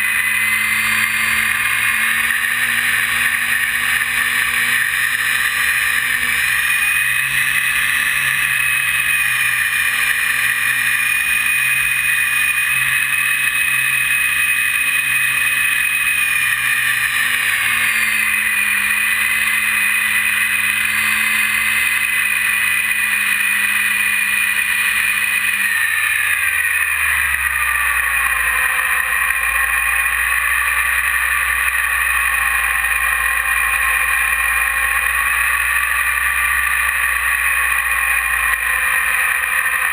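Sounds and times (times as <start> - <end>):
electric motor and propeller whining: 0.0 - 39.9.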